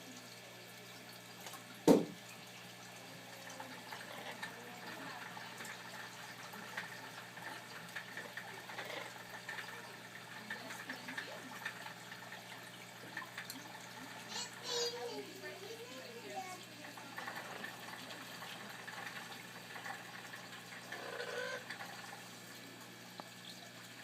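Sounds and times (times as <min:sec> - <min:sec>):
faint trickling water: 0:00.0 - 0:24.0
sharp knock: 0:01.9 - 0:02.2.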